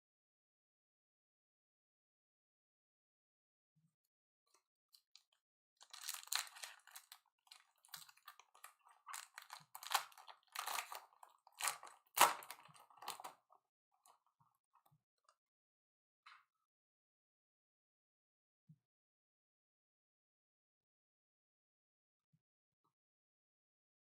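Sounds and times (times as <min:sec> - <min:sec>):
card pack wrapper crinkling: 0:05.8 - 0:13.3.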